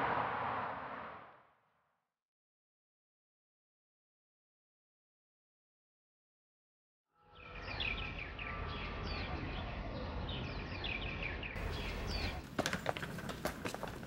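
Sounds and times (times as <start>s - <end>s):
low outdoor ambience: 7.3s - 14.0s
birds chirping: 7.4s - 14.0s.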